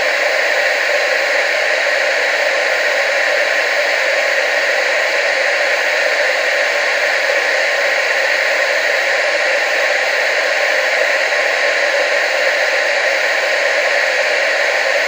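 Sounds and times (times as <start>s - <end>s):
television static hiss: 0.0s - 15.0s.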